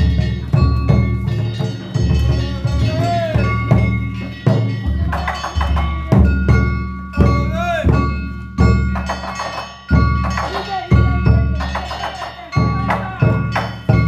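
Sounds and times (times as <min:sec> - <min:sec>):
large drum beats: 0:00.0 - 0:14.0
small metal gongs ringing: 0:00.0 - 0:14.0
voices calling out: 0:00.0 - 0:14.0.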